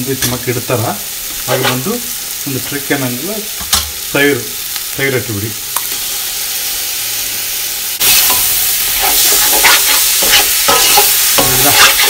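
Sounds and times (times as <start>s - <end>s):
masala sizzling in oil: 0.0s - 12.0s
metal ladle scraping a pot: 9.0s - 12.0s.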